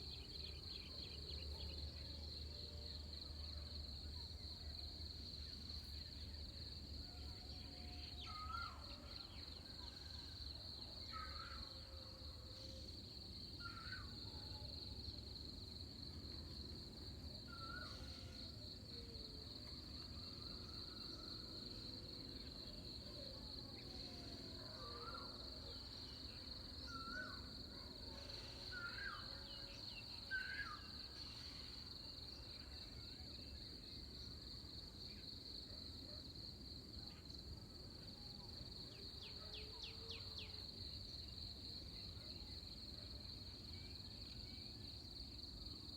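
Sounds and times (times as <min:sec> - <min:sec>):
insects trilling: 0:07.2 - 0:14.8, 0:15.4 - 0:35.7.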